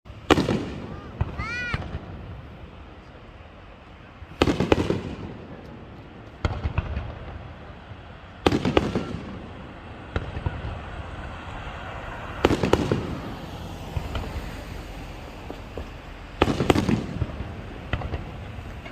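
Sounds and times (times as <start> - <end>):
firework crackling: 0.1 - 18.9
small firework pops: 4.4 - 7.4, 8.4 - 10.8, 12.4 - 14.5, 15.4 - 18.9.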